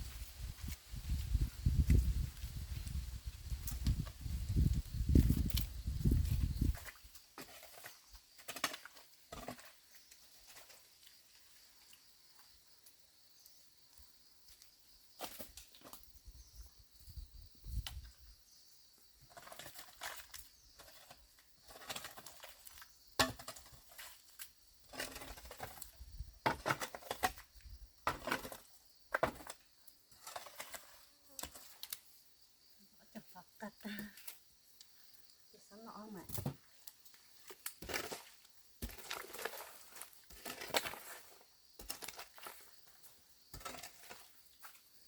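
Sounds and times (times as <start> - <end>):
rustling and clatter of handled things: 19.2 - 32.1.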